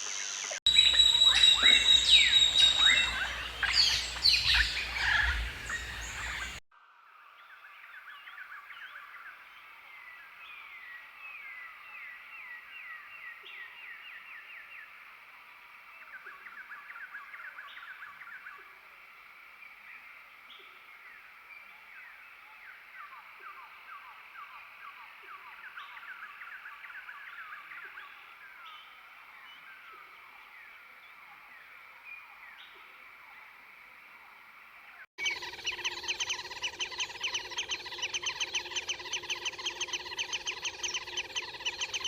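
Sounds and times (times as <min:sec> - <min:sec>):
birds chattering and chirping: 0:00.6 - 0:06.6, 0:35.2 - 0:42.0.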